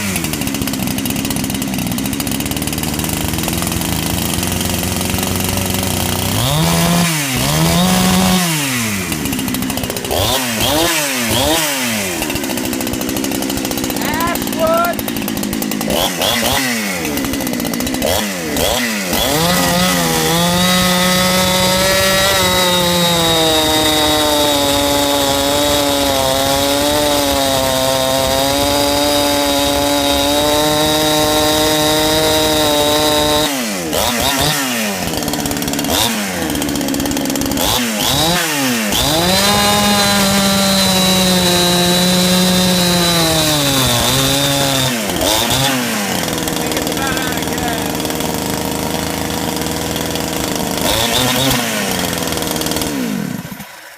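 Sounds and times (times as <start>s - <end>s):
two-stroke chainsaw revving: 0.0s - 53.9s.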